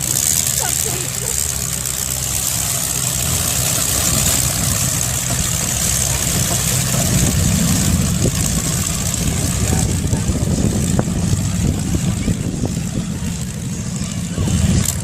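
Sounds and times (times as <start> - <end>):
car engines rumbling: 0.0 - 15.0.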